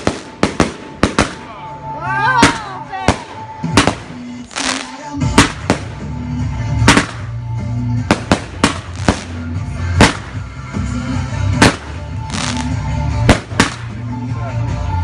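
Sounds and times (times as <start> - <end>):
fireworks bangs: 0.0 - 1.6, 2.4 - 6.1, 6.8 - 7.4, 8.0 - 10.5, 11.5 - 14.0
music with steady bass line: 0.0 - 15.0
firework rushing hiss: 3.1 - 6.0, 11.6 - 13.9.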